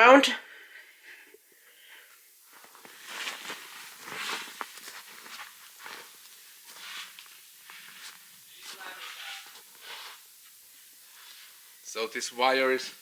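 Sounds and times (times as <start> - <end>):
footsteps and scuffs: 2.5 - 10.6.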